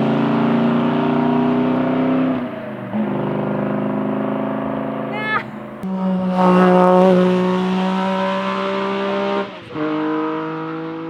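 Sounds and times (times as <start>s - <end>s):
rally car engine at high revs: 0.0s - 11.0s.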